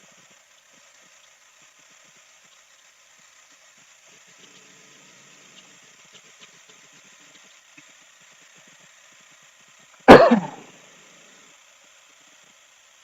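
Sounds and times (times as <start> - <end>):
sudden loud burst: 10.1 - 10.6.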